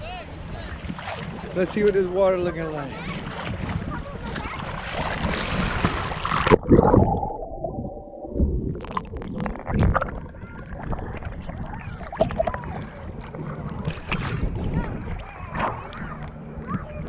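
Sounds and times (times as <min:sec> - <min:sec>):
seawater splashing over microphone: 0:00.0 - 0:17.0
underwater gurgling and bubbling: 0:03.0 - 0:17.0.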